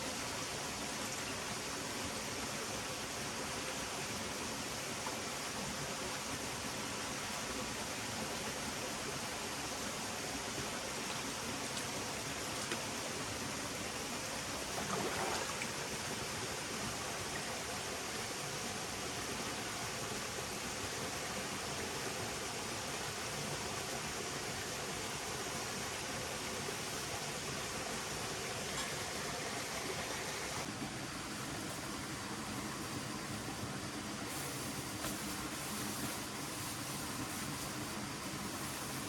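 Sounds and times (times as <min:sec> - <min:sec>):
stream flowing: 0:00.0 - 0:39.0.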